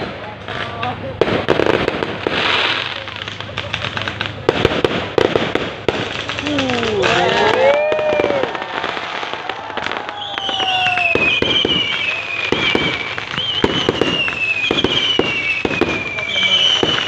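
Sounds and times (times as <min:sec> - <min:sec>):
fireworks bangs and crackles: 0:00.0 - 0:17.0
high wavering whistle: 0:10.1 - 0:17.0.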